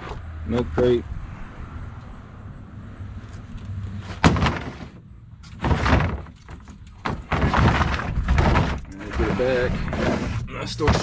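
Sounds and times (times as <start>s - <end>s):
crate scraping on truck bed: 3.8s - 11.0s
plastic crate knocking: 4.2s - 5.0s, 5.6s - 9.5s, 10.8s - 11.0s.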